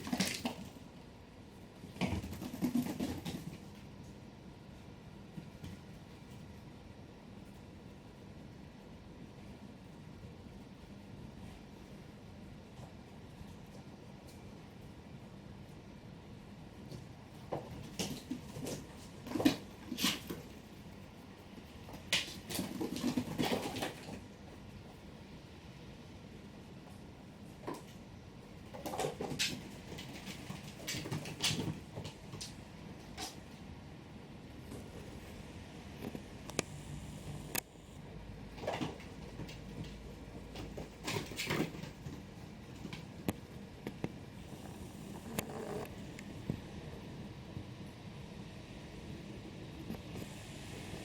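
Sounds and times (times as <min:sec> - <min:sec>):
kittens playing taps and thumps: 0:00.0 - 0:00.8, 0:01.8 - 0:03.8, 0:21.8 - 0:24.2, 0:28.6 - 0:33.5, 0:38.5 - 0:45.9.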